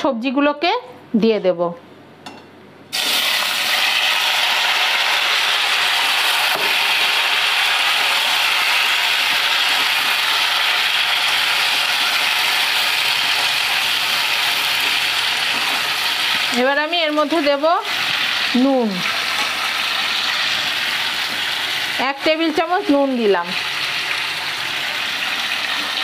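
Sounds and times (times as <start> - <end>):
vegetables sizzling in hot oil: 2.9 - 26.0.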